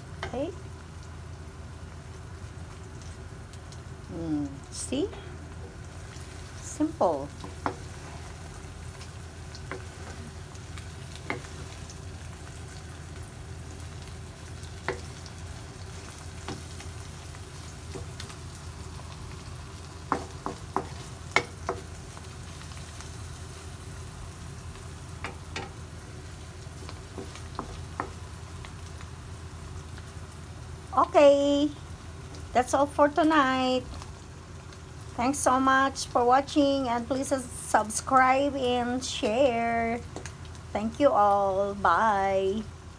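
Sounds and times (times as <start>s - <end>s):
omelette sizzling in a pan: 0.0s - 42.9s
spatula scraping and tapping pan: 11.2s - 11.8s, 20.0s - 21.9s, 26.8s - 28.2s.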